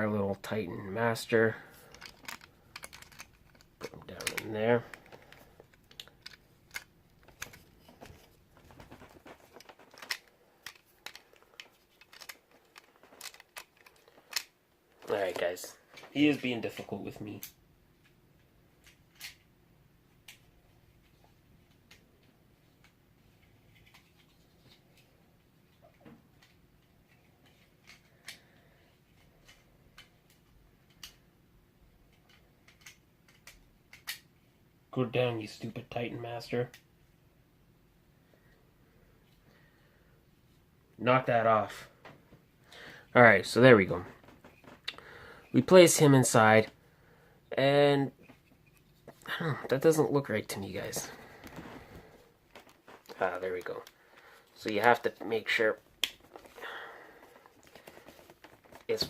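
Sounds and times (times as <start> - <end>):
plastic toy parts clicking: 1.9 - 7.7, 9.5 - 14.5, 18.8 - 19.4, 32.2 - 34.2.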